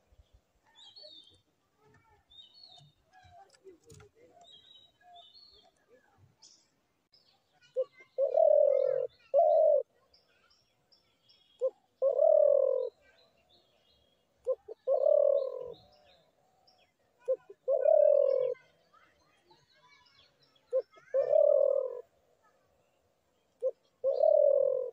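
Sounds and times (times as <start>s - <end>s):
small birds chirping: 0.0s - 24.9s
dove cooing: 7.8s - 9.9s, 11.6s - 13.0s, 14.4s - 16.1s, 17.2s - 18.7s, 20.7s - 22.1s, 23.6s - 24.9s.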